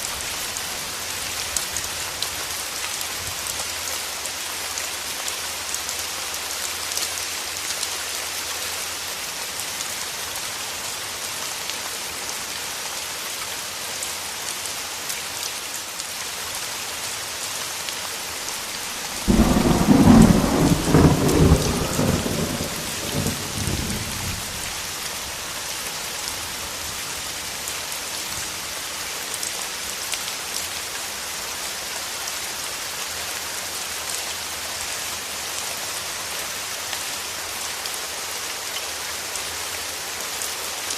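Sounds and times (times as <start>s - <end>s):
heavy rain: 0.0s - 40.9s
thunder clap rumbling: 19.1s - 24.6s.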